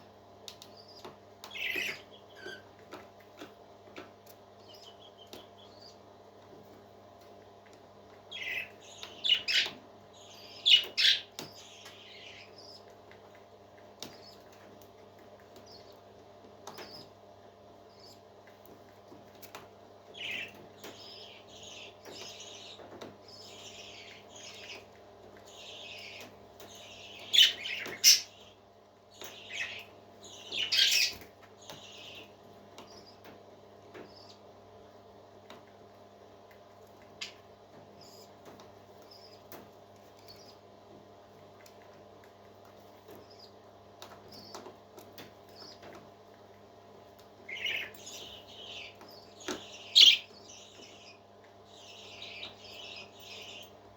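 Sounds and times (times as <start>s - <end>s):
baby parrot peeping: 0.6s - 2.8s, 4.6s - 6.0s, 8.3s - 12.9s, 20.1s - 33.3s, 47.4s - 53.8s.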